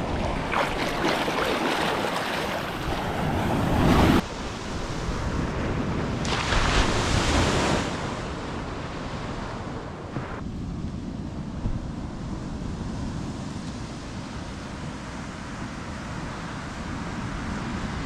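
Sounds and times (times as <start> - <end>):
ocean surf breaking: 0.0 - 4.9.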